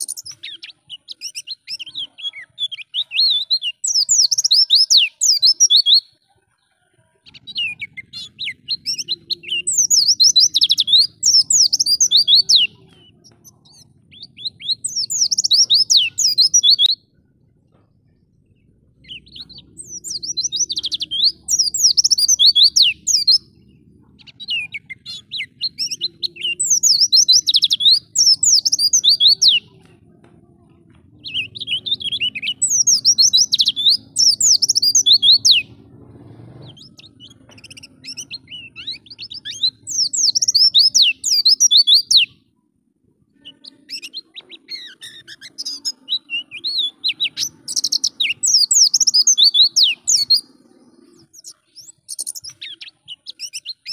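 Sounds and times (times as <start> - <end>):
bird warbling high-pitched: 0.0 - 6.2, 7.2 - 17.2, 43.3 - 53.9.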